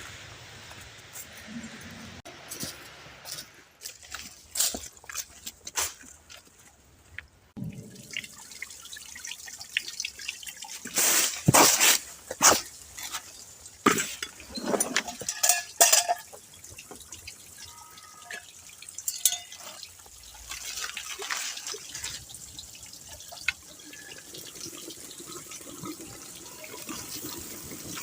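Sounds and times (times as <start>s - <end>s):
small waterfall splashing: 7.6s - 28.0s.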